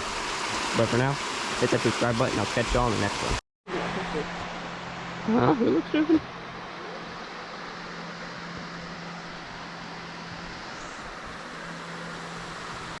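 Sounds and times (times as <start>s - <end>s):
waterfall cascading: 0.0s - 5.6s.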